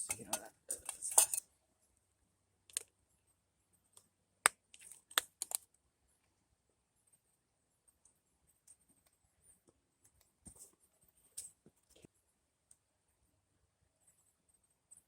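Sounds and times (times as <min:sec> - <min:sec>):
metal stove parts clicking: 0:00.0 - 0:01.4.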